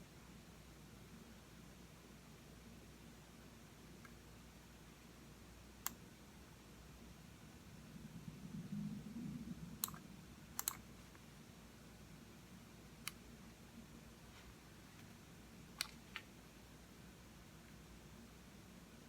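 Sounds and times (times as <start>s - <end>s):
faint room hum: 0.0s - 19.0s
mouse buttons clicking: 10.6s - 10.8s.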